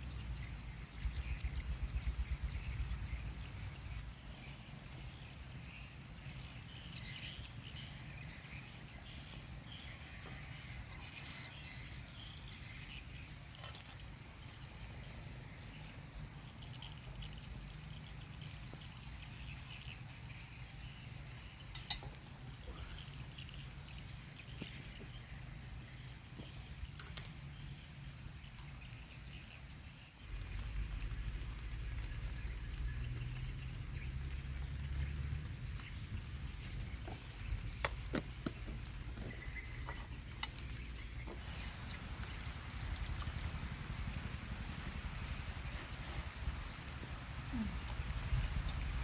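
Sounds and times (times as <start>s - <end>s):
wind on microphone: 0.8s - 4.0s, 41.4s - 49.0s.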